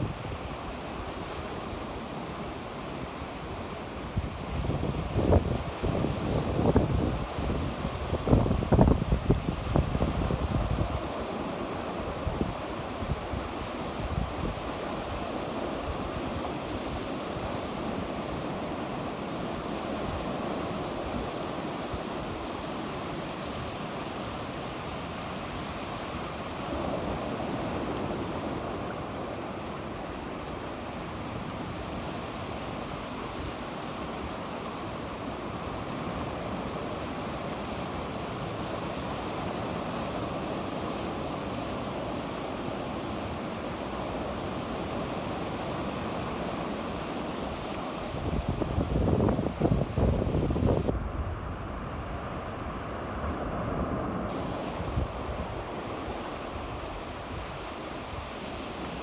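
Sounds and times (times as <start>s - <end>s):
sea waves breaking on shore: 0.0s - 59.0s
wind on microphone: 4.0s - 17.6s, 47.4s - 52.8s, 53.4s - 59.0s.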